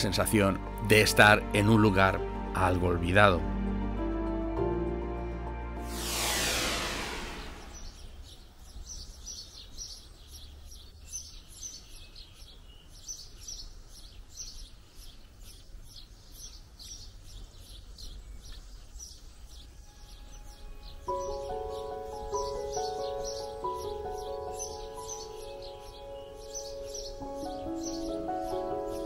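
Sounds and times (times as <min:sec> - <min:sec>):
birds chirping: 0:05.9 - 0:29.0.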